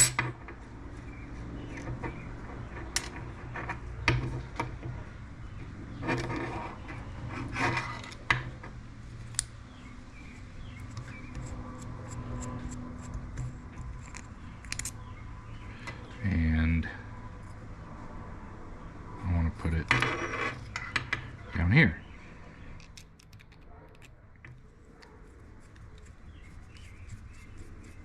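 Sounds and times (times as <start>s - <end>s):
metal scraping rubs: 1.6s - 5.0s, 5.8s - 8.7s, 20.0s - 21.1s
metal parts clicking and clinking: 22.8s - 24.6s.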